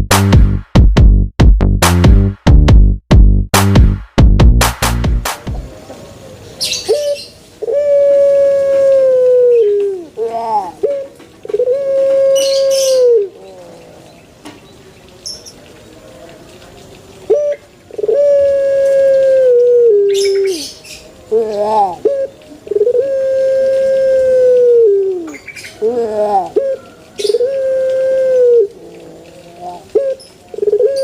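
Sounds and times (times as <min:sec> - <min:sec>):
dove cooing: 0:06.1 - 0:14.2, 0:17.2 - 0:31.0.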